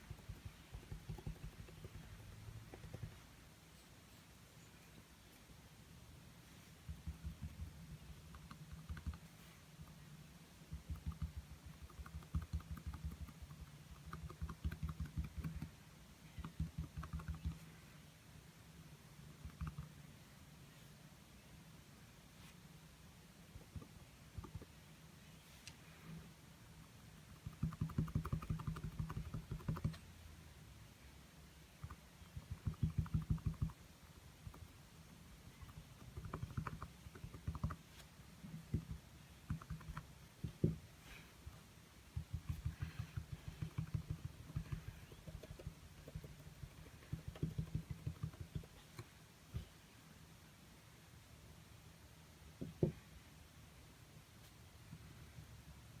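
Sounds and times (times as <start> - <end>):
paint dabbing on canvas: 0.0 - 3.4, 6.5 - 10.1, 10.7 - 17.7, 31.7 - 33.8, 42.0 - 49.7
paintbrush dabbing on canvas: 0.0 - 3.4, 42.1 - 49.1.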